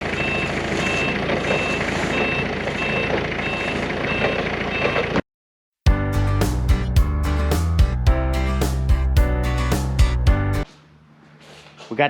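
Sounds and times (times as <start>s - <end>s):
reversing alarm beeping: 0.1s - 5.2s
diesel engine running: 5.9s - 10.6s
music: 5.9s - 10.7s.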